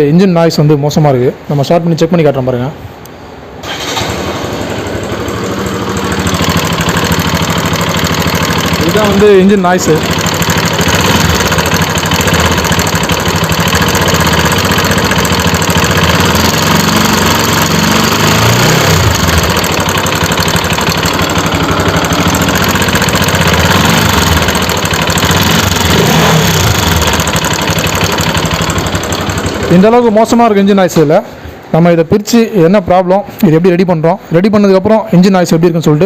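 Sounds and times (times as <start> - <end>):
motorcycle engine idling: 3.7 - 30.4.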